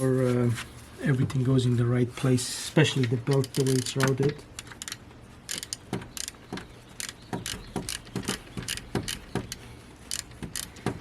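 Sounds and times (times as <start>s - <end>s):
metallic clicks of hand tools: 7.0s - 11.0s.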